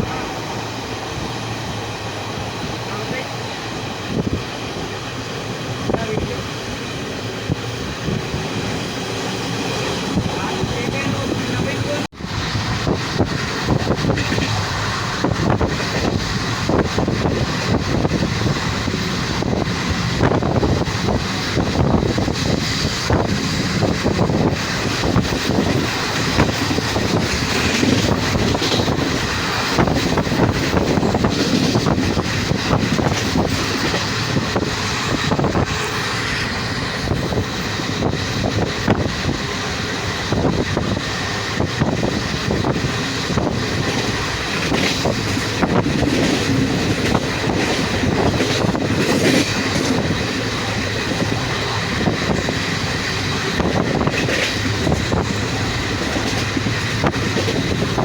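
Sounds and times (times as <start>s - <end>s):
train rumbling: 0.0s - 58.0s
wind on microphone: 3.7s - 58.0s
wheels clattering over rails: 12.8s - 35.9s, 40.0s - 58.0s.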